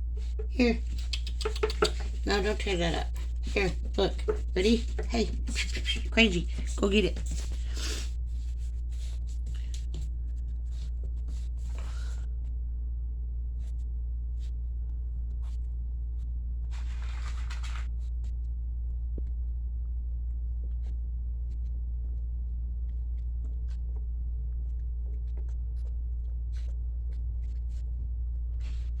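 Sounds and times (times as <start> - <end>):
light clicks and taps: 0.0 - 8.0
puppy playing with a toy: 0.0 - 8.1
rustling scrape: 0.0 - 9.9, 16.7 - 18.0.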